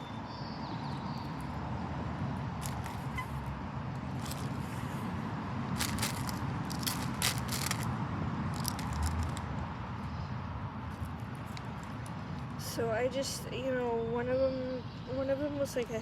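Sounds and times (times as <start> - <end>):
low background rumble: 0.9 - 15.2
chip bag crinkling: 2.6 - 3.2, 4.1 - 4.6, 5.7 - 7.9, 8.5 - 9.4.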